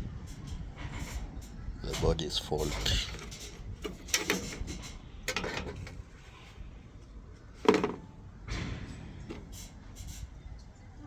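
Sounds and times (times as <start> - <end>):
hard objects knocking and clattering: 7.6 - 9.4.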